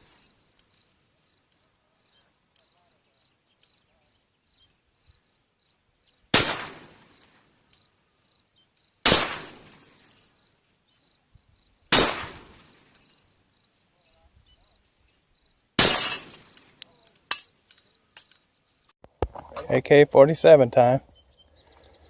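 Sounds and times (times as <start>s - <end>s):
metallic ring of steel target: 6.4s - 7.1s, 9.1s - 10.1s, 11.9s - 12.9s, 15.8s - 16.6s
rifle shots: 9.1s - 9.8s, 11.9s - 12.7s.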